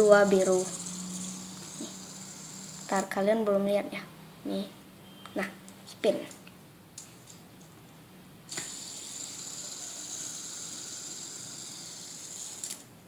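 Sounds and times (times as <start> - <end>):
fidget spinner whirring: 0.0 - 3.5, 8.5 - 13.0
fidget spinner click: 8.5 - 12.9.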